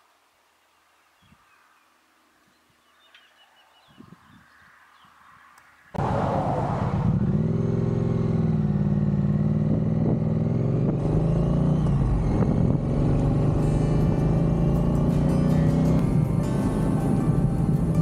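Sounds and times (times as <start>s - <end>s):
motorcycle engine running: 6.0s - 18.0s.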